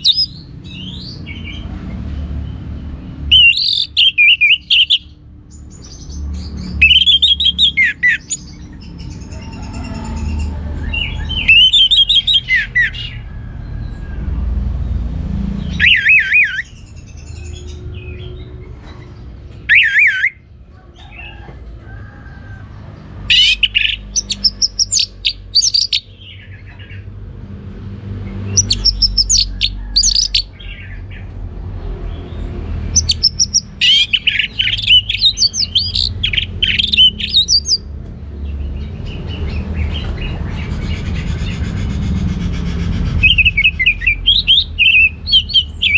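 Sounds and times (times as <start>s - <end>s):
thrush singing whistled phrases: 3.3s - 5.1s, 15.6s - 16.8s, 19.7s - 20.4s, 23.3s - 26.0s.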